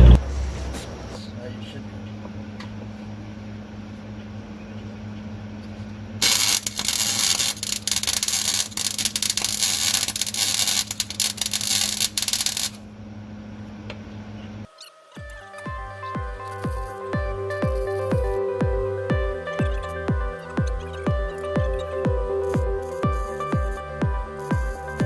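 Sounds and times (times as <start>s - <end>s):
electrical hum: 0.0s - 25.0s
welder crackling hiss: 6.2s - 12.8s, 15.2s - 25.0s.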